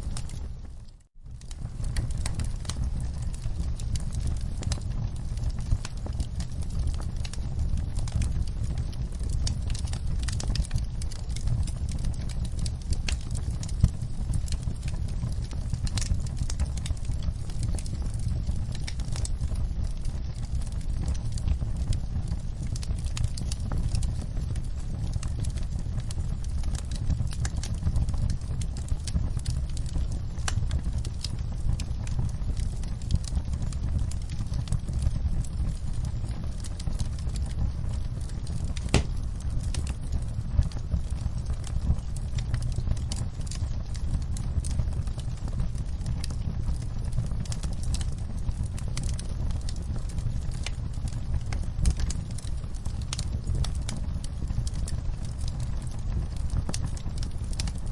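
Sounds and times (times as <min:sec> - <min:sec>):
low rumble of fire: 0:00.0 - 0:57.9
wood fire crackling and popping: 0:00.0 - 0:57.9
sharp loud pop: 0:38.9 - 0:39.2.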